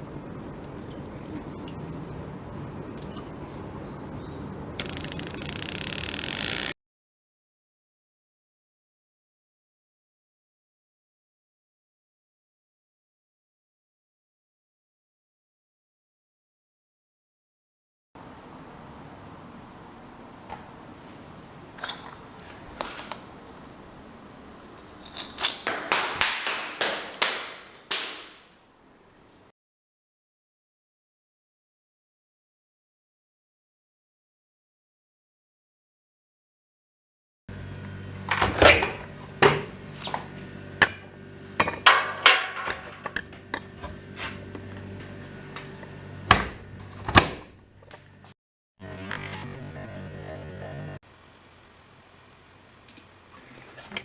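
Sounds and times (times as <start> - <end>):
steady low hum: 0.0 - 5.5, 37.5 - 54.0.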